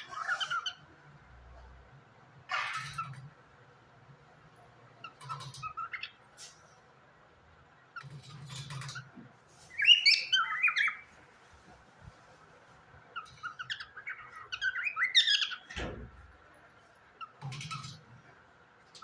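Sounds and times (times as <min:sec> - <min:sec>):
parrot chirping and warbling: 0:00.0 - 0:01.0, 0:02.4 - 0:03.4, 0:05.0 - 0:06.3, 0:07.9 - 0:11.2, 0:13.1 - 0:15.8, 0:17.2 - 0:18.2.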